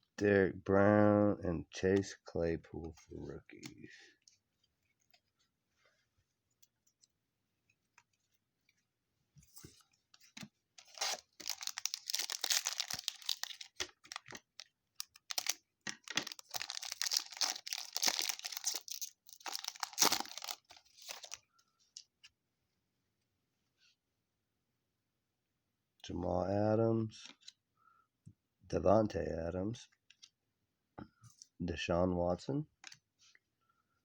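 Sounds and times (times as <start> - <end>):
wrapper tearing and crumpling: 10.8 - 21.4.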